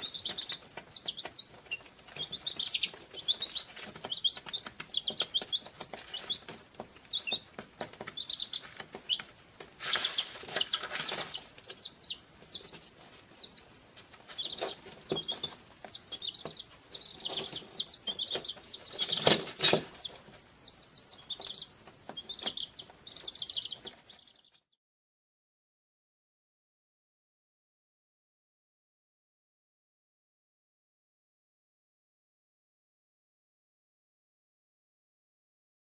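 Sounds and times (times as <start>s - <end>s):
birds chirping: 0.0s - 24.8s.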